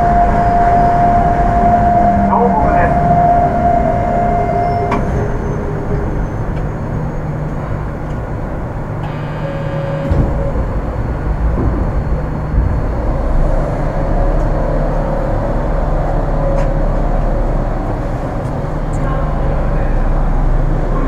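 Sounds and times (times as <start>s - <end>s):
thin electric whining tones: 0.0s - 6.6s, 9.0s - 11.6s
train rumble from inside car: 0.0s - 21.0s.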